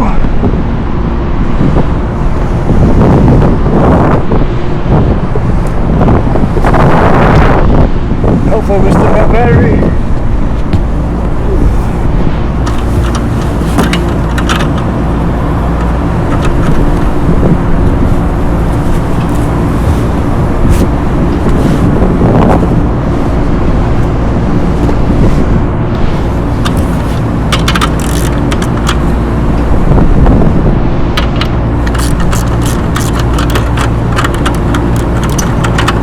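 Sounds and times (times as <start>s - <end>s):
hvac equipment droning: 0.0s - 36.0s
clicks and scrapes on fan housing: 10.6s - 23.3s, 24.8s - 29.7s, 31.1s - 36.0s.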